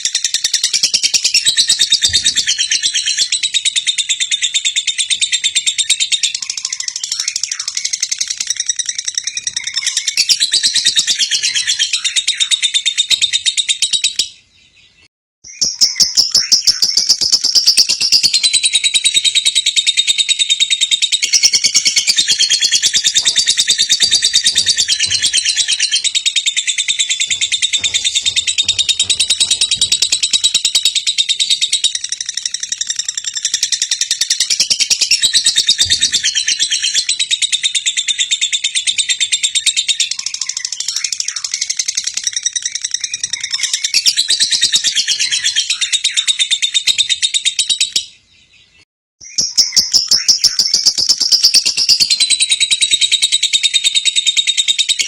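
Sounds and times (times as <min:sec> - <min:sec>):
lovebird chattering chirps: 0:15.5 - 0:48.0.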